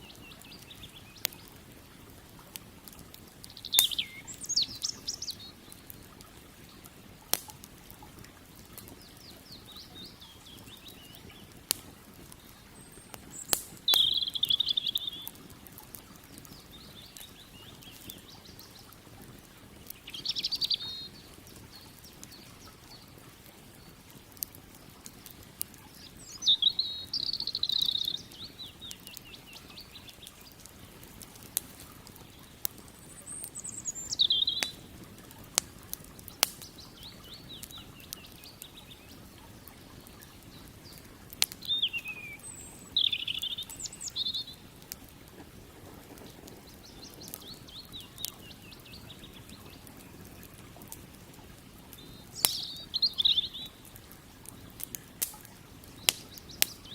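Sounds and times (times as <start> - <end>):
songbird singing trilled phrases: 0.0 - 1.5, 3.4 - 5.9, 9.0 - 11.6, 12.4 - 15.4, 16.2 - 18.9, 19.9 - 23.2, 25.9 - 30.6, 32.2 - 34.9, 36.3 - 44.8, 46.6 - 50.5, 52.0 - 53.8, 55.9 - 56.9
campfire crackling and popping: 0.0 - 56.9.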